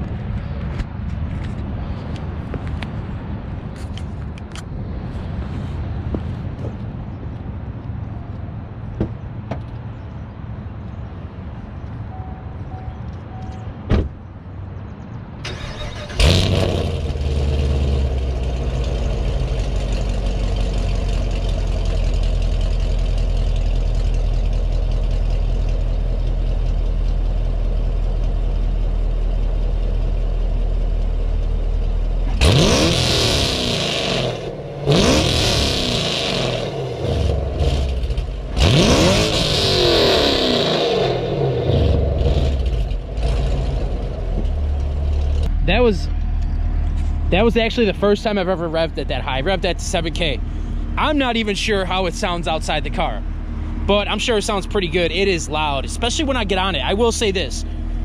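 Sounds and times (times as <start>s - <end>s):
car engine starting and idling: 15.4s - 58.0s
car engine revving hard: 15.5s - 21.0s, 32.3s - 44.2s.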